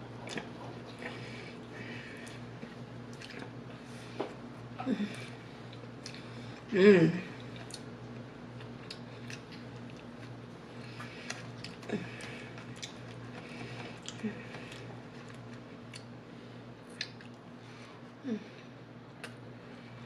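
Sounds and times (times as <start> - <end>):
steady low hum: 0.0 - 20.0
close chewing with mouth clicks: 2.2 - 3.6, 7.4 - 16.1, 16.9 - 17.4.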